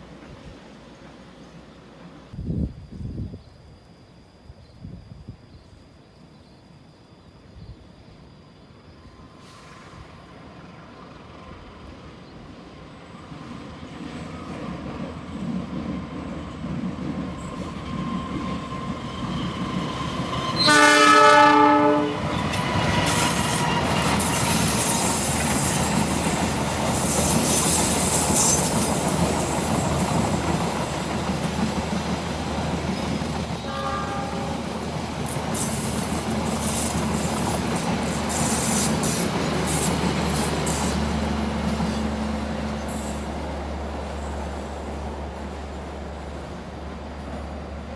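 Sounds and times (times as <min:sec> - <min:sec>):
train wheels on rails: 0:00.0 - 0:06.3, 0:08.2 - 0:47.9
locomotive horn blast: 0:20.6 - 0:22.4, 0:33.6 - 0:34.7.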